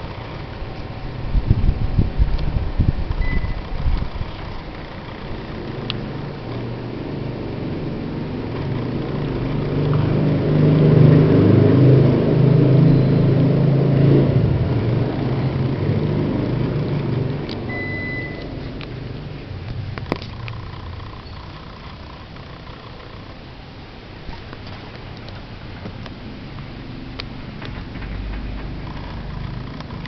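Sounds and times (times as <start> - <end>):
low rumble: 0.0 - 23.4
short beep: 3.2 - 3.6, 17.7 - 18.6.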